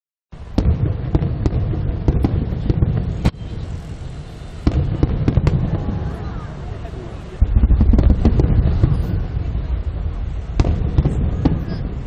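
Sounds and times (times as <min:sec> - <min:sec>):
fireworks cracking: 0:00.4 - 0:12.0
loud firework bang: 0:00.5 - 0:06.5, 0:07.4 - 0:12.0
rumble of bursting shells: 0:00.6 - 0:03.4, 0:04.6 - 0:06.0, 0:07.4 - 0:12.0.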